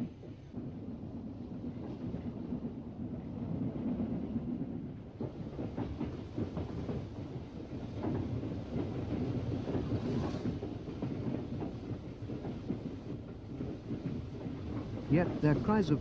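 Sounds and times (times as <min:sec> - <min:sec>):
train clanks and knocks: 0:00.0 - 0:16.0
train rumbling: 0:00.0 - 0:16.0.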